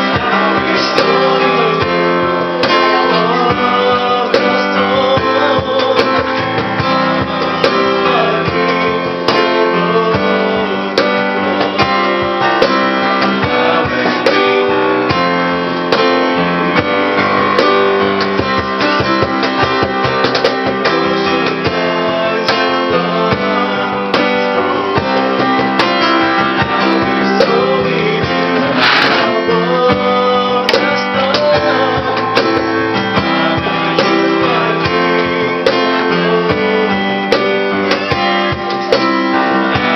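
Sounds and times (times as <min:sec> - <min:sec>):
cajon beating rhythm: 0:00.0 - 0:21.8, 0:25.0 - 0:31.5
strummed acoustic guitar: 0:00.0 - 0:39.9.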